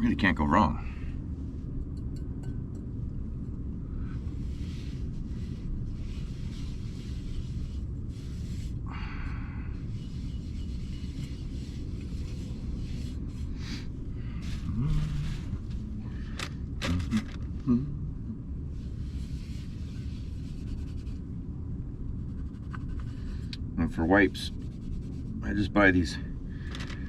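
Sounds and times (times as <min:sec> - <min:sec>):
steady low rumble: 0:00.0 - 0:27.0
wipes scraping over surfaces: 0:04.2 - 0:08.8, 0:09.8 - 0:17.4, 0:18.8 - 0:21.2.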